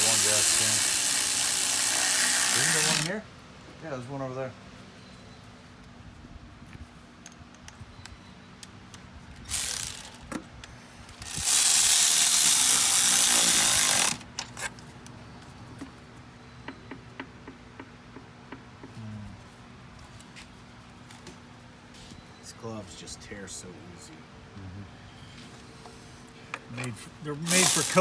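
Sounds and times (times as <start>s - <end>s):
hand tools clicking: 0.0s - 3.1s, 9.5s - 10.3s, 11.2s - 14.8s, 27.5s - 28.0s
power tool running: 0.0s - 3.2s, 9.5s - 10.2s, 11.2s - 14.2s, 27.5s - 28.0s.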